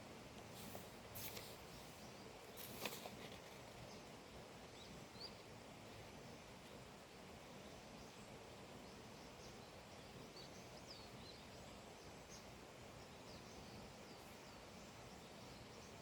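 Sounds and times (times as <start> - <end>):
soft rustles: 0.4 - 3.9.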